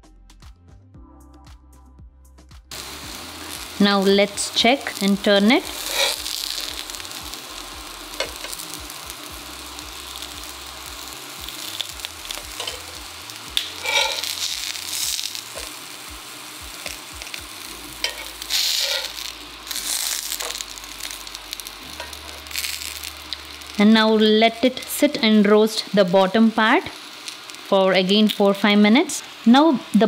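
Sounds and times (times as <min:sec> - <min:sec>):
peppers sizzling in a pan: 0:02.7 - 0:30.0
metal spatula scraping a pan: 0:05.7 - 0:06.3, 0:12.5 - 0:13.0, 0:13.6 - 0:15.1, 0:18.0 - 0:20.6.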